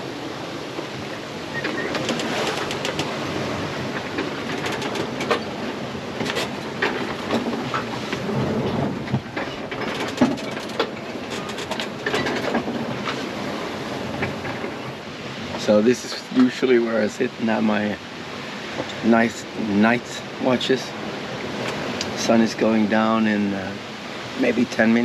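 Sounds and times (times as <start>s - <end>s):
rush of water and wind: 0.0s - 25.0s
rigging clicks and knocks: 1.6s - 3.2s, 3.9s - 13.2s.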